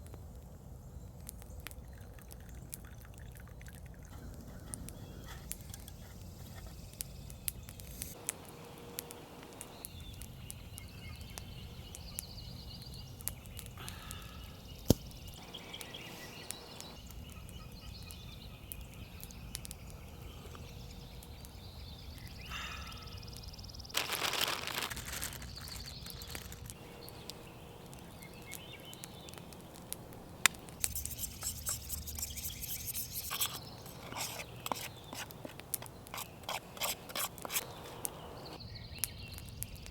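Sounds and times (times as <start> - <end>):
faint bird calls: 9.8 - 23.6
campfire crackling and popping: 23.3 - 31.4.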